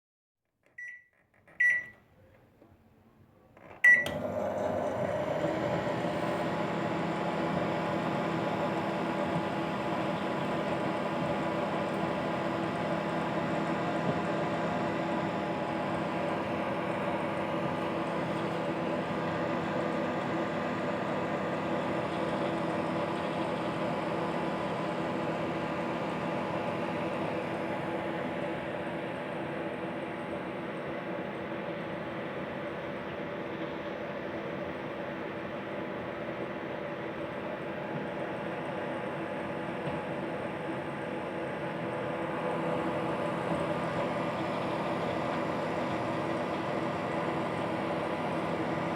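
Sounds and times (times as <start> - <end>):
microwave beeps: 0.8 - 2.0, 3.8 - 4.4
microwave oven humming: 0.8 - 2.4, 3.4 - 48.9
microwave click: 3.8 - 4.4.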